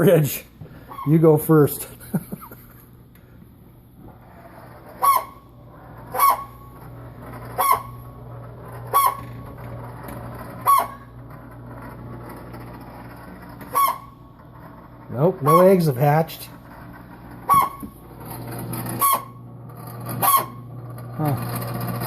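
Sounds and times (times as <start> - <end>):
refrigerator low hum: 0.0 - 22.0
refrigerator squeaky squawks: 0.7 - 1.5, 4.2 - 9.6, 10.4 - 11.2, 13.2 - 14.3, 15.1 - 16.4, 17.4 - 22.0.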